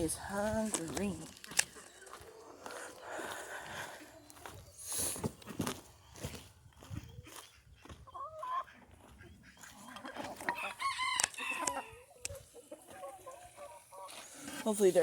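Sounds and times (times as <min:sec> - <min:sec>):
chickens clucking: 0:00.0 - 0:15.0
rooster crowing: 0:10.6 - 0:12.0.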